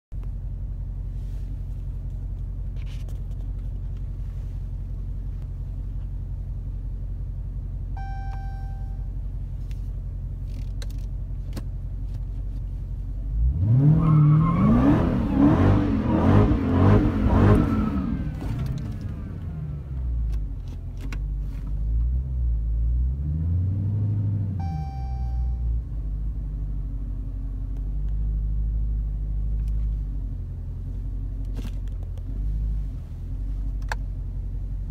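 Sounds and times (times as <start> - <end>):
car engine idling: 0.1 - 13.5, 24.6 - 34.9
short electronic chime: 8.0 - 9.0, 24.6 - 25.7
car engine revving hard: 13.4 - 19.4.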